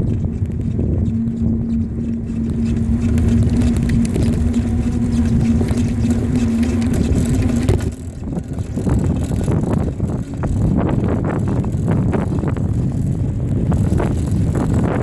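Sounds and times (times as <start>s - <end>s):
steady hum: 0.0s - 15.0s
wind rumble on microphone: 0.0s - 15.0s.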